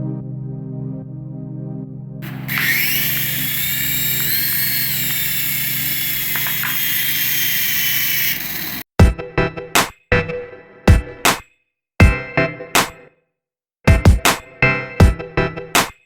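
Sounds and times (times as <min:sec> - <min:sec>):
toy electric motor whining: 0:02.2 - 0:08.9.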